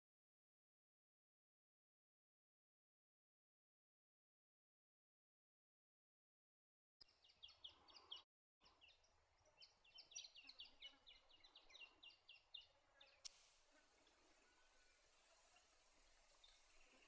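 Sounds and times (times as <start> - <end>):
steady high hiss: 13.2 - 17.0.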